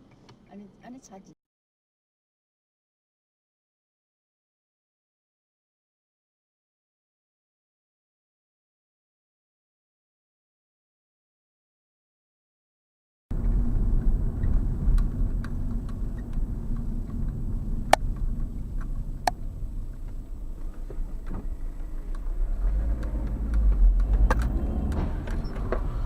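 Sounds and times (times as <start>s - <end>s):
vehicle road and engine rumble: 13.3s - 26.0s.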